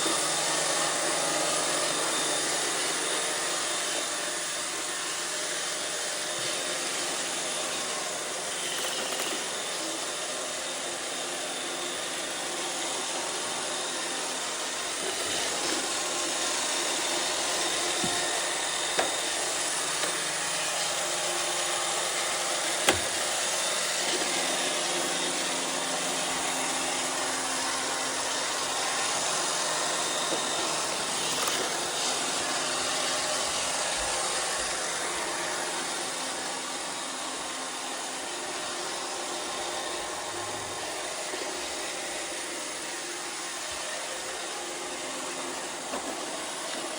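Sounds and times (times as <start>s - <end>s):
robot vacuum whirring: 0.0s - 46.9s.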